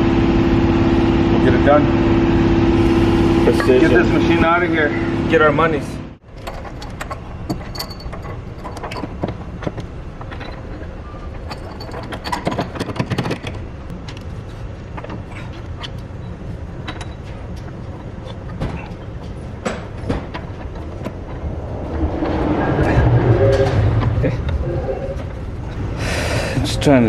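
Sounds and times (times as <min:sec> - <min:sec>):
machine rumbling: 0:00.0 - 0:27.0
metal clanks and knocks: 0:06.3 - 0:13.6, 0:16.8 - 0:25.9.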